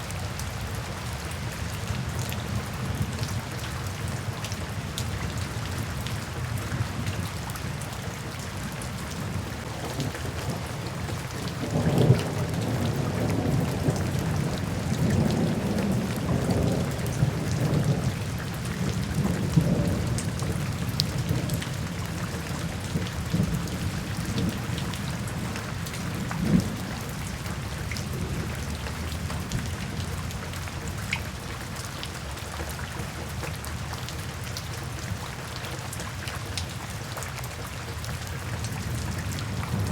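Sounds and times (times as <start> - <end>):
steady rain falling: 0.0 - 39.9
thunder rumbling: 9.6 - 22.1.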